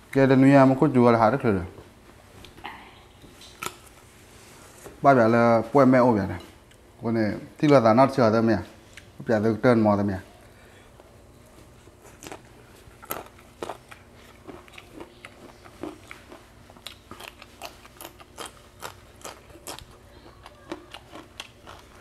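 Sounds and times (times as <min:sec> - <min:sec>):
person crunching raw vegetables: 0:11.8 - 0:22.0.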